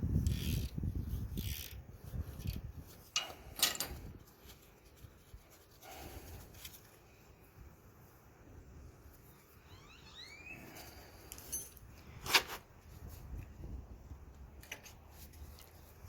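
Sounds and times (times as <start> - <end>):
metal parts scraping and rubbing: 0.2 - 6.9, 10.7 - 13.2
sharp metal clinks: 11.3 - 11.8.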